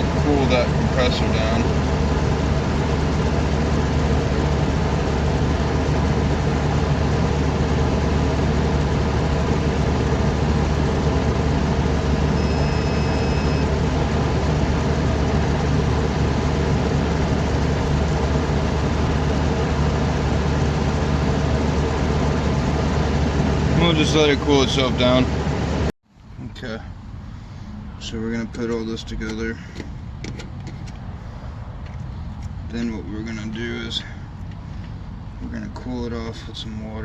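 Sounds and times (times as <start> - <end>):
condenser fan motor running: 0.0 - 26.4
short high beep: 12.3 - 13.7.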